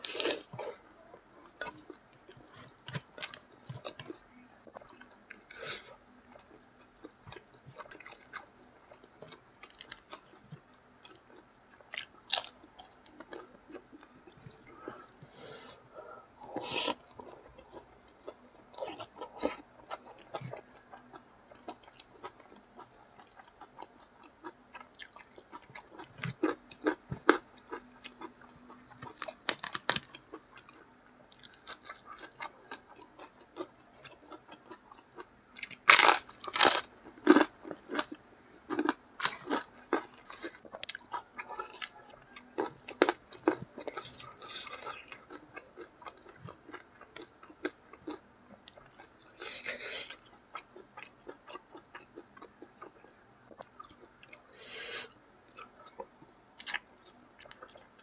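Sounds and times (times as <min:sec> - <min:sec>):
person chewing crispy food: 0:00.0 - 0:58.0.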